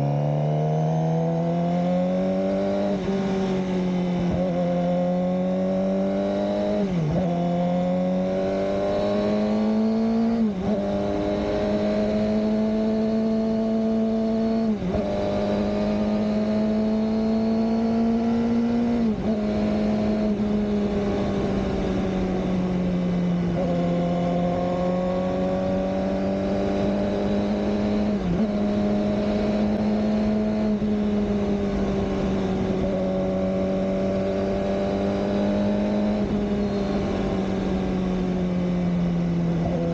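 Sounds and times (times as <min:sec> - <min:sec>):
motorcycle engine running: 0:08.9 - 0:39.9.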